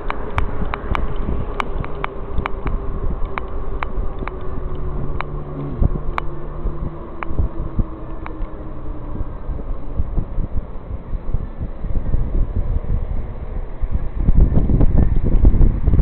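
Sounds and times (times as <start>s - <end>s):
sharp clicks and rattles: 0.0s - 6.4s
electric motor whine: 0.0s - 15.4s
wind on microphone: 0.0s - 16.0s.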